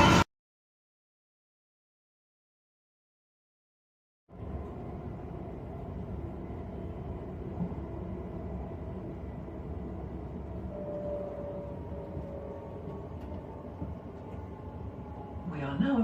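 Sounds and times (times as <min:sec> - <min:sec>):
passenger train rumbling: 0:00.0 - 0:00.3, 0:04.3 - 0:16.0.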